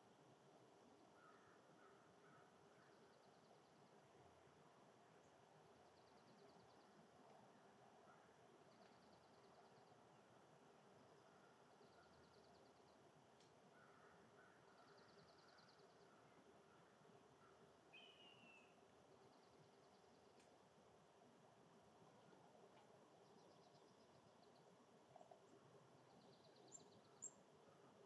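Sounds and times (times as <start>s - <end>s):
distant bird trilling: 17.9s - 18.7s.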